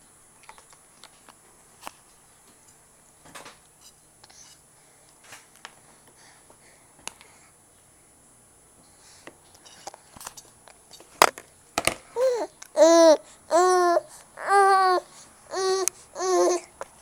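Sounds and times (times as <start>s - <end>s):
baby babbling: 12.2s - 16.8s.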